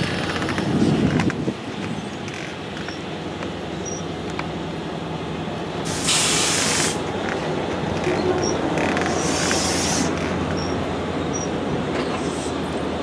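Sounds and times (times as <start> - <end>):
diesel train humming: 0.0 - 13.0
compressed-air hiss: 5.9 - 7.0, 9.2 - 10.2.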